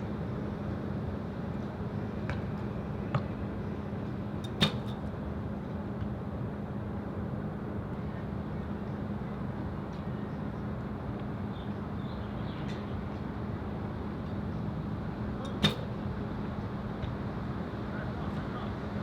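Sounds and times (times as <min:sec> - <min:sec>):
constant low hum: 0:00.0 - 0:19.0
sharp knocks: 0:04.5 - 0:05.0.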